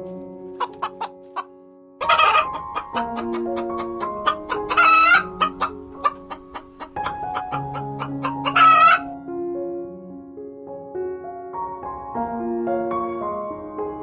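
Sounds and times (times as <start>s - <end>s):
soft piano music: 0.0s - 14.0s
chicken clucking: 0.5s - 9.1s
loud harsh chicken calls: 0.6s - 9.1s.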